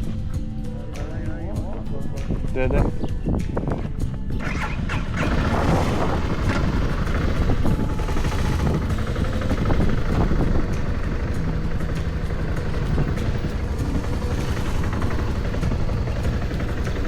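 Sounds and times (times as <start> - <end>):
motorcycle engine running: 0.0 - 17.0
wind rumble on microphone: 0.0 - 17.0.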